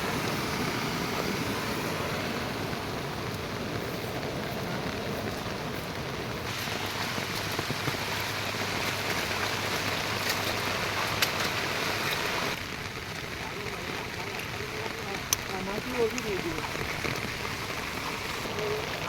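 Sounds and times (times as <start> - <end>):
rain falling: 0.0 - 19.0
drops ticking: 6.5 - 19.0.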